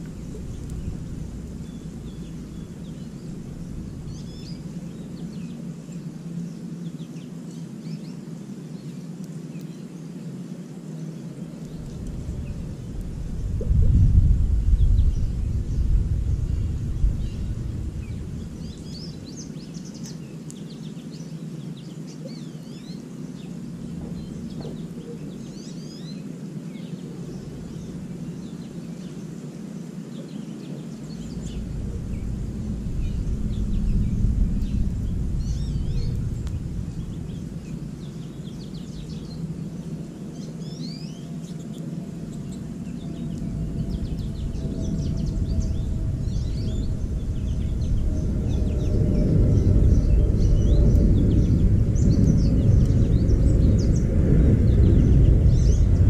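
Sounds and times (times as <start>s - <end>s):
steady low rumble: 0.0s - 7.0s, 11.4s - 21.3s, 22.2s - 29.3s, 30.6s - 56.0s
songbirds chirping and twittering: 0.0s - 56.0s.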